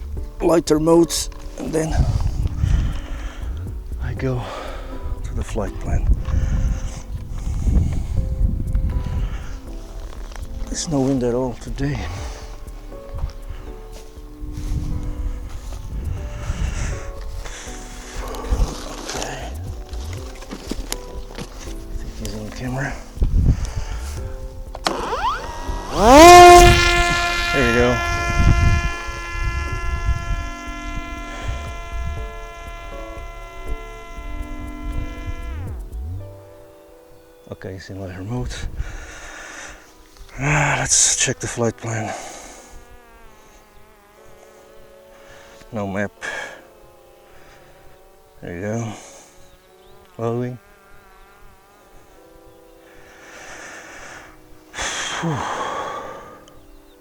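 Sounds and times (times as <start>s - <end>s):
person breathing in: 2.0s - 3.6s, 38.7s - 40.0s, 52.8s - 56.5s
faint steady buzz: 23.1s - 37.3s, 38.7s - 57.0s
drone motor and propeller whining: 24.8s - 36.2s
low rumble: 34.6s - 36.4s
person sighing heavily: 53.3s - 56.5s.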